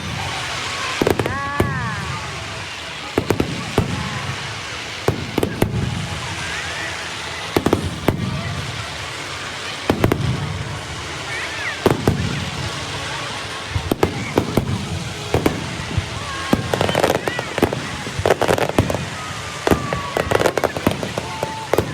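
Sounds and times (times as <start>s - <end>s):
fireworks bangs: 0.0s - 21.9s.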